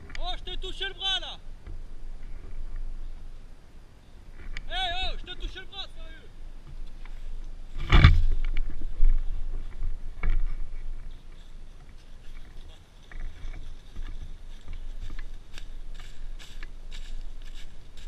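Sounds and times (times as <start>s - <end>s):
low rumble on microphone: 6.3s - 18.0s
soft clicks and rustles: 6.6s - 18.0s.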